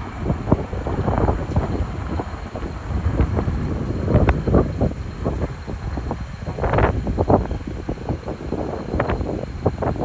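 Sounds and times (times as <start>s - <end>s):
freight train rumbling: 0.0s - 10.0s
wind buffeting microphone: 0.0s - 10.0s.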